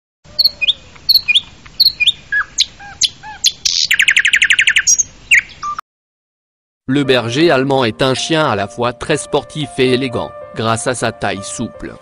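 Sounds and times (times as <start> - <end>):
bird chirping: 0.3 - 5.8
bird trill: 0.3 - 5.8
bird whistled notes: 0.4 - 5.8.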